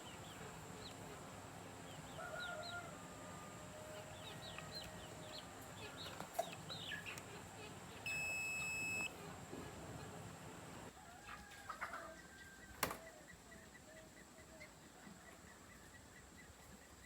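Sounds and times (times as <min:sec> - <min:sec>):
chickens clucking: 0:00.0 - 0:17.0
high-pitched beep: 0:08.1 - 0:09.1.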